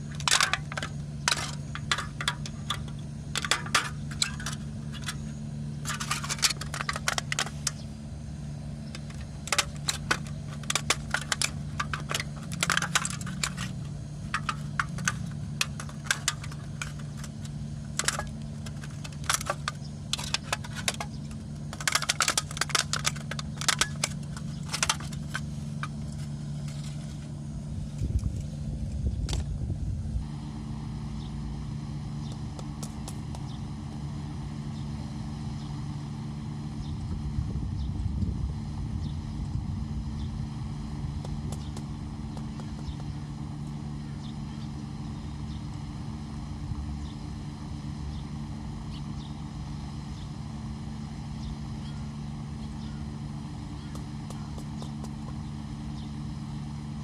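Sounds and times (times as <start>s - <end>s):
sharp clicks and clinks: 0.0s - 7.9s, 8.9s - 27.0s
steady low hum: 0.0s - 57.0s.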